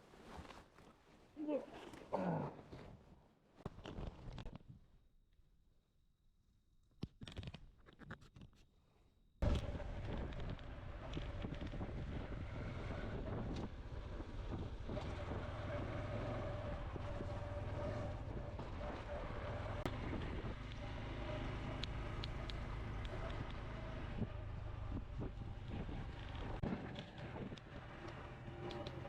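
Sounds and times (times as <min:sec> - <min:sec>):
wind buffeting microphone: 0:09.4 - 0:19.0
motorcycle engine running: 0:09.4 - 0:29.0.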